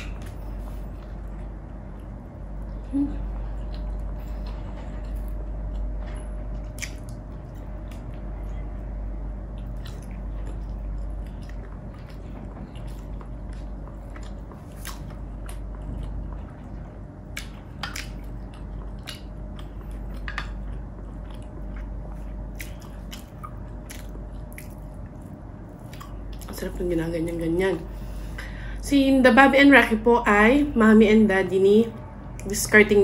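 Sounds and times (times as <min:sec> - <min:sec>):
low hum: 0:00.0 - 0:33.0
person chewing: 0:06.6 - 0:08.6, 0:09.5 - 0:26.5.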